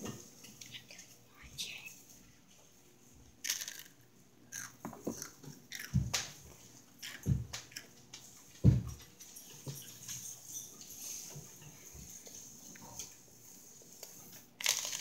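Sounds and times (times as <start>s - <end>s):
chewing with crackles: 3.4s - 8.6s.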